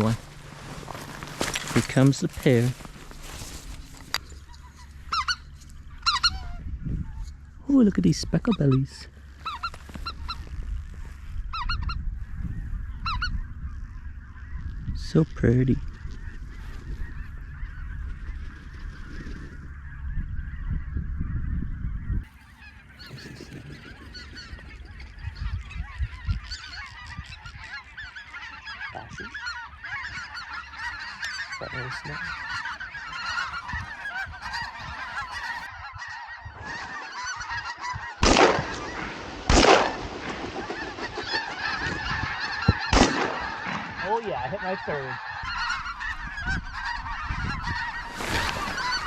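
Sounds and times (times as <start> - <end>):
geese calling: 0.0 - 49.0
shotgun shots: 38.2 - 41.4, 42.9 - 43.9.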